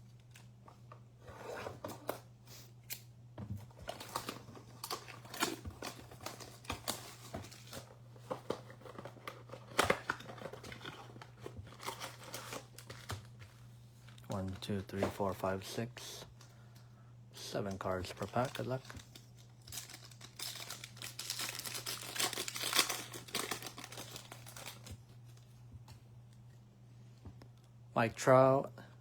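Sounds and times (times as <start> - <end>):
foil packs crinkling and tearing: 3.7 - 13.4, 17.4 - 25.4.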